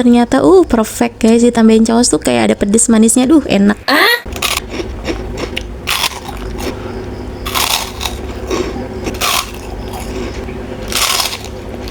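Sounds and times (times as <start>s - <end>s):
faint steady hum: 0.0s - 11.9s
crunching crisp cracker snack: 4.3s - 6.8s, 7.4s - 11.9s.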